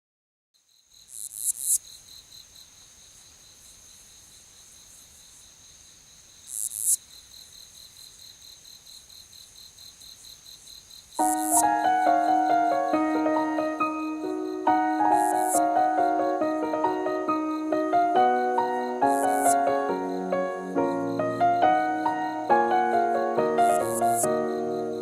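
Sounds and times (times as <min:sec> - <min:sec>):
insect buzzes: 0:00.6 - 0:25.0
insects trilling: 0:00.6 - 0:25.0.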